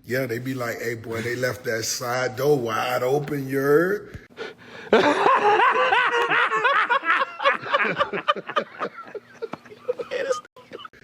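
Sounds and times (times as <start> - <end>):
person laughing: 4.9 - 11.0.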